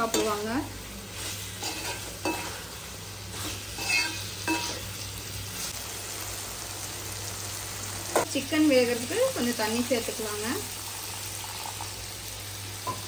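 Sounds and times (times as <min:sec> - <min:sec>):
chicken sizzling in a pan: 0:00.0 - 0:13.0
ladle scraping and clinking pan: 0:01.6 - 0:02.6, 0:03.8 - 0:04.8.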